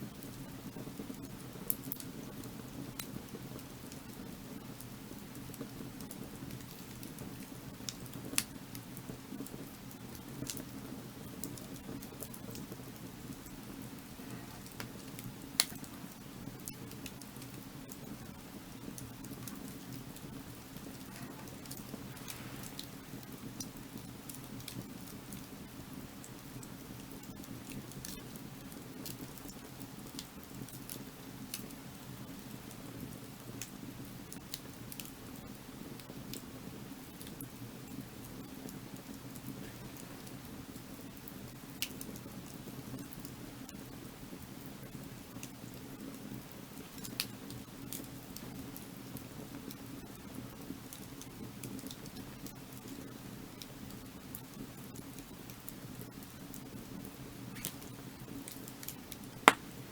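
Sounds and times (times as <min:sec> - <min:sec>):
firewood crackling and popping: 0:00.0 - 0:59.9
fire low rush: 0:19.0 - 0:24.3.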